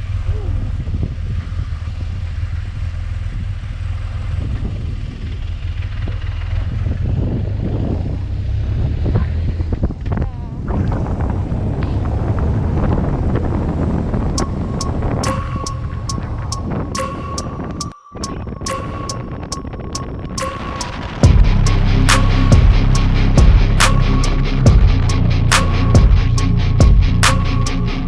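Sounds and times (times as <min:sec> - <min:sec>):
motorcycle engine running: 0:24.6 - 0:25.3.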